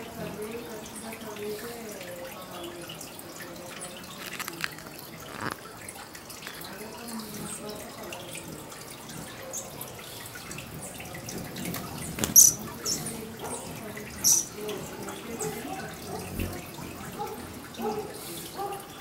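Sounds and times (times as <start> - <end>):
sharp high bird chips: 14.2 - 14.6.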